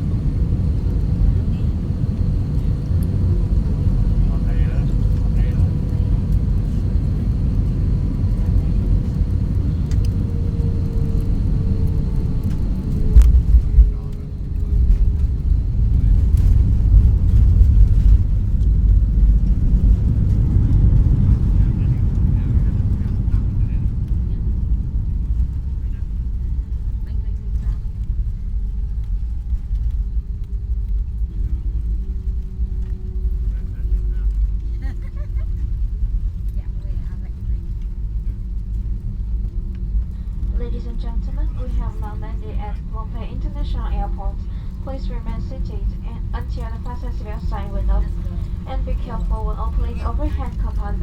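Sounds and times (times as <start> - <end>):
low rumble of engines and airflow: 0.0 - 51.0
thin steady hum: 39.2 - 51.0.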